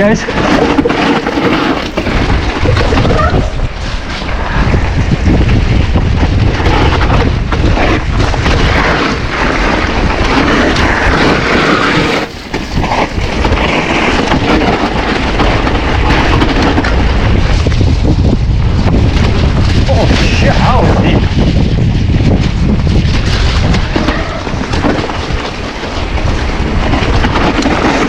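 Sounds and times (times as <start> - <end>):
bike knocking over rough ground: 0.0 - 28.0
bike tyre noise: 0.0 - 28.0
wind buffeting microphone: 0.0 - 28.0.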